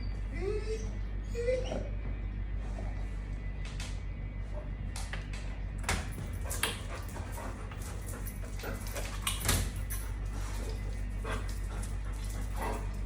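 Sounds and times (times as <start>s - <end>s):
dog whining and whimpering: 0.0s - 2.1s.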